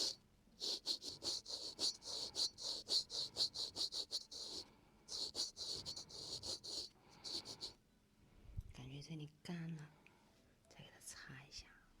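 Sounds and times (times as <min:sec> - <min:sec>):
razor scraping skin: 0:00.0 - 0:07.7.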